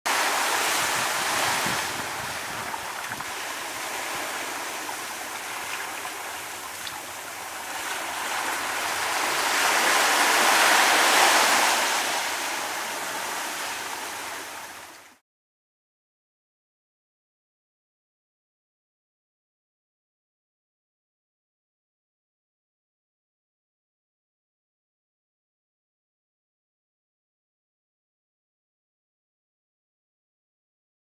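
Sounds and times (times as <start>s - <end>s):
wind: 0.0s - 15.2s
rushing water: 0.1s - 15.2s.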